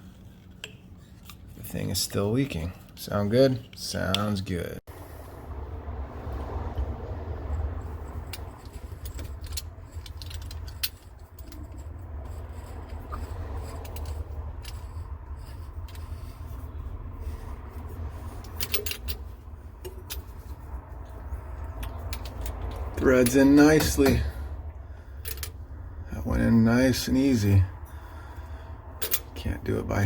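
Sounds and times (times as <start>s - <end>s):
steady low hum: 0.0s - 30.0s
light metal scrapes: 7.4s - 25.6s
small metallic clicks: 8.1s - 16.2s, 21.5s - 24.2s.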